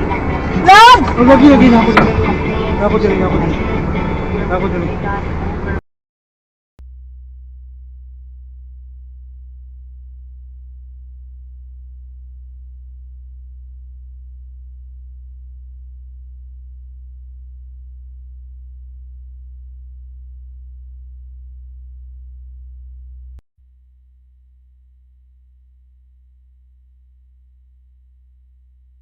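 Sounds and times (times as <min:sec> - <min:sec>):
low electronic hum: 0:06.8 - 0:29.0.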